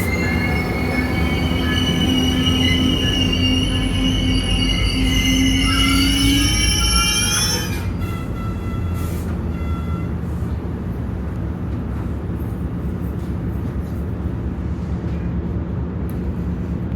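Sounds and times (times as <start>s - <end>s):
train wheel squeal: 0.0s - 10.5s
train rumbling: 0.0s - 16.9s.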